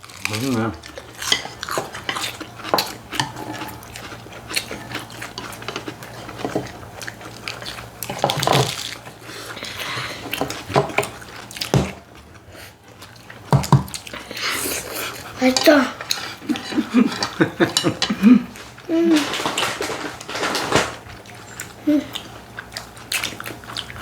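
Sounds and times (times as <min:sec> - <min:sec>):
chewing and biting: 0:00.0 - 0:24.0
cutlery clinking on dishes: 0:16.5 - 0:18.3.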